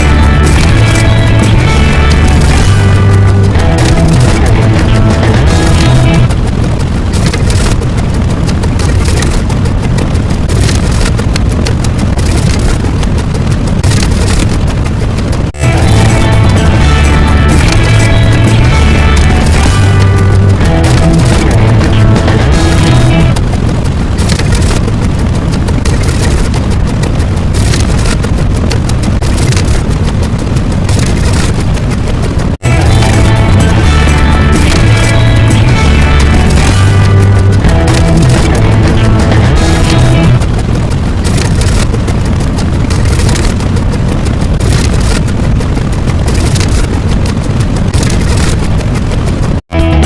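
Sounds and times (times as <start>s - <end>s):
loud distorted roar: 0.0s - 8.6s, 15.5s - 24.1s, 32.6s - 42.4s, 49.7s - 50.0s
loud low rumbling noise: 0.0s - 50.0s.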